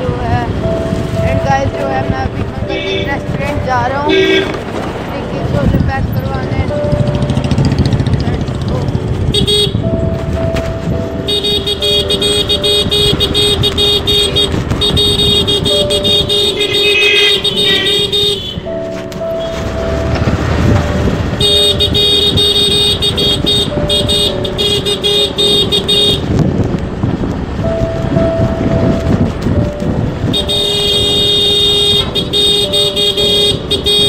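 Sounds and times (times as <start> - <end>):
road traffic rumble: 0.0 - 34.0
vehicle horns honking: 2.6 - 4.7, 9.2 - 10.5, 11.2 - 26.4, 30.2 - 34.0.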